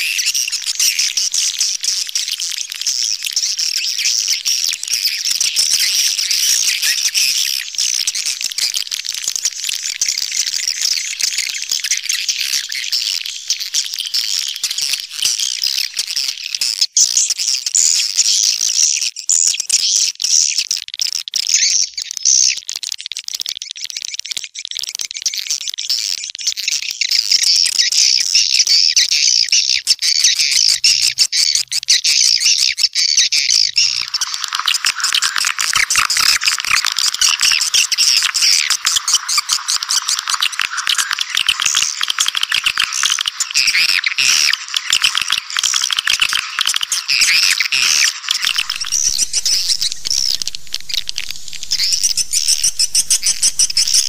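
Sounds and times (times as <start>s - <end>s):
swiftlets chattering: 33.8s - 54.0s
lower-pitched bird calls: 47.3s - 54.0s.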